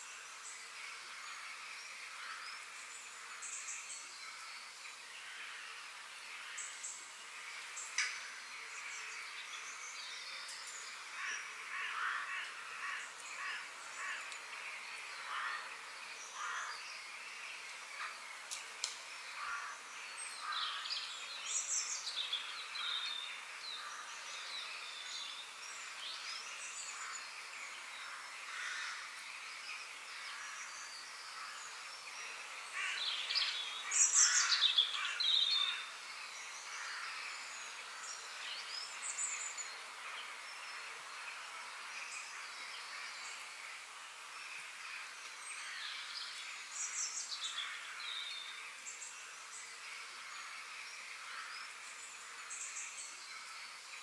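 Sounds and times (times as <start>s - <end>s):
birds chirping and calling: 30.2s - 40.5s.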